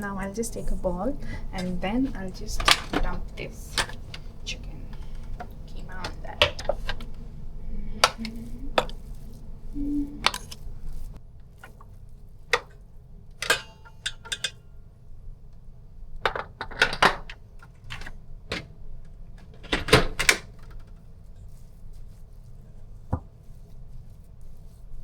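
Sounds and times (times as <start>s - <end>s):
utensils knocking against bowls: 0.0s - 11.0s.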